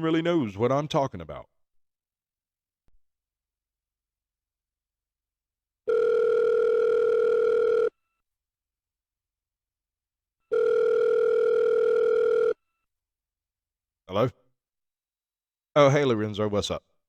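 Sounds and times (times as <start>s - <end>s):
telephone ringing: 5.9s - 8.0s, 10.5s - 12.6s.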